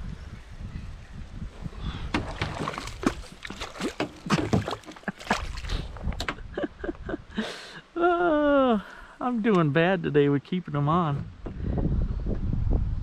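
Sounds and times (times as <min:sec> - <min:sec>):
water sloshing and splashing: 0:02.0 - 0:06.5
knocks and clicks on a kayak: 0:02.0 - 0:06.6.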